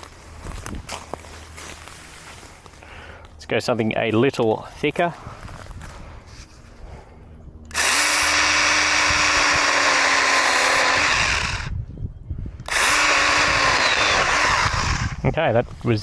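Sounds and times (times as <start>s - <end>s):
mini chainsaw cutting branch: 7.7s - 11.7s, 12.6s - 15.2s.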